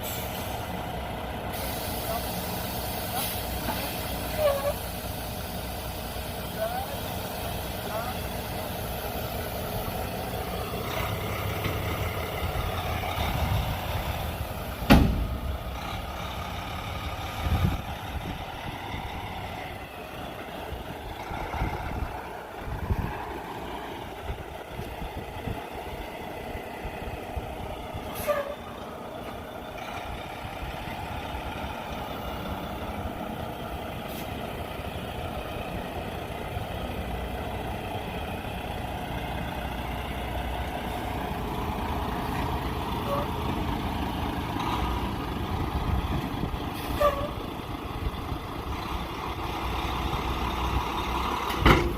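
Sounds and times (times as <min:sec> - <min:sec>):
diesel engine and road noise: 0:00.0 - 0:51.9
sharp knock: 0:14.9 - 0:15.4.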